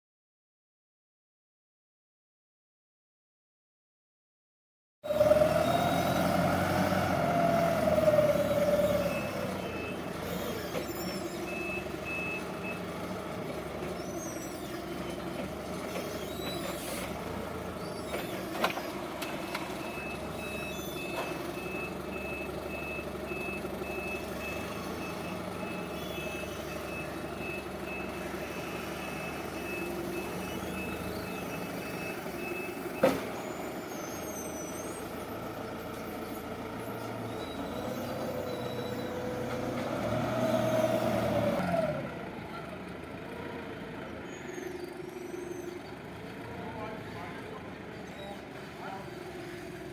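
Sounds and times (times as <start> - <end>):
engine hum: 5.1 - 49.9
reversing alarm beeping: 19.4 - 35.3.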